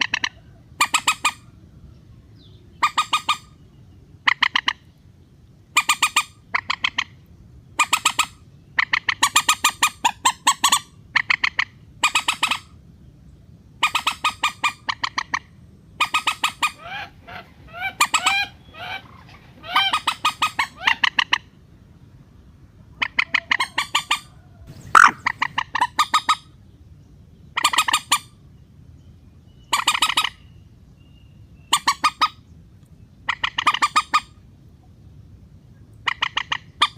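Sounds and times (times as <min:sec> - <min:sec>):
waterbird harsh clucking calls: 0:00.0 - 0:01.5, 0:02.8 - 0:03.6, 0:04.2 - 0:04.8, 0:05.8 - 0:07.2, 0:07.8 - 0:12.7, 0:13.8 - 0:21.5, 0:23.0 - 0:26.5, 0:27.6 - 0:28.3, 0:29.7 - 0:30.4, 0:31.7 - 0:32.4, 0:33.3 - 0:34.4, 0:36.0 - 0:36.9
bird upward-sliding notes: 0:24.7 - 0:25.4.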